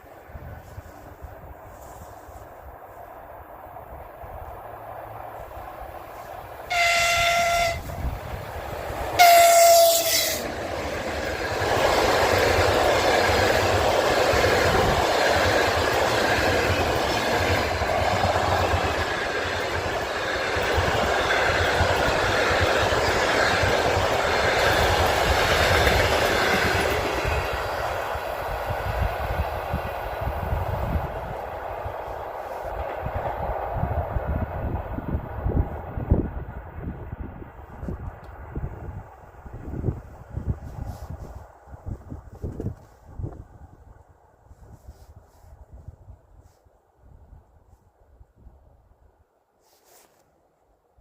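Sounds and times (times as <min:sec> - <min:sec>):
train wheels rumbling on rails: 0:00.0 - 0:46.1
locomotive horn blasts: 0:06.7 - 0:08.2, 0:09.2 - 0:10.5.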